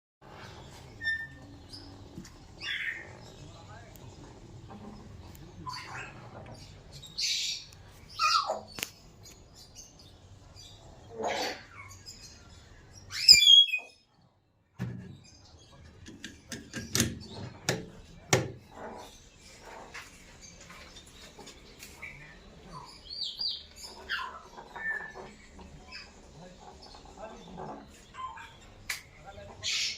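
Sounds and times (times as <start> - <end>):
parrot calling and chirping: 2.6 - 3.3, 5.6 - 6.5, 7.1 - 9.0, 10.8 - 14.1, 22.0 - 28.7.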